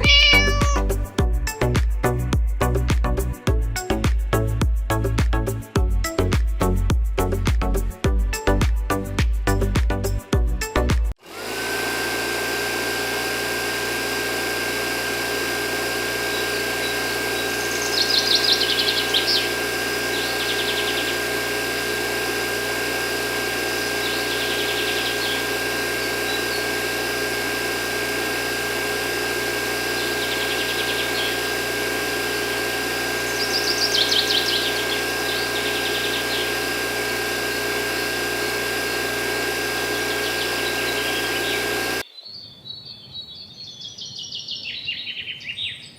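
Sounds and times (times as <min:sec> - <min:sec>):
bird chirping: 0:00.0 - 0:00.9, 0:17.6 - 0:19.5, 0:42.1 - 0:45.9
electric motor humming and whining: 0:00.0 - 0:03.3, 0:11.2 - 0:42.0.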